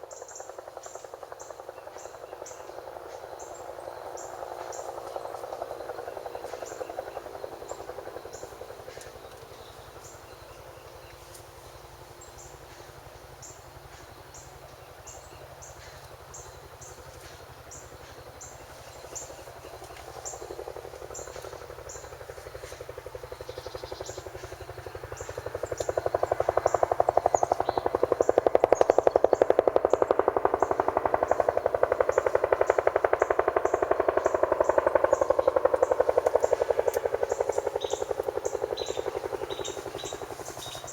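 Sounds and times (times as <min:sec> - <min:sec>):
helicopter rotor chop: 0:00.0 - 0:40.9
insects chirping: 0:00.0 - 0:40.9.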